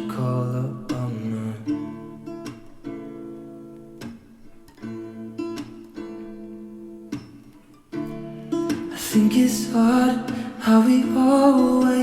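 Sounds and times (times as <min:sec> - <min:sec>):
strummed acoustic guitar chords: 0:00.0 - 0:12.0.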